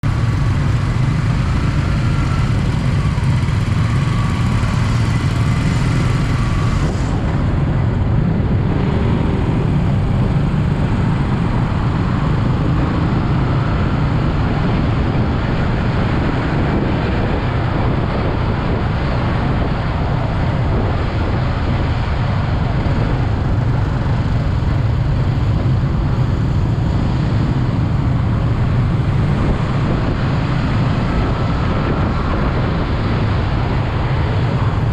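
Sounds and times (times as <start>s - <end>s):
motorcycle engine running: 0.0s - 18.8s
road and wind noise: 0.0s - 34.9s.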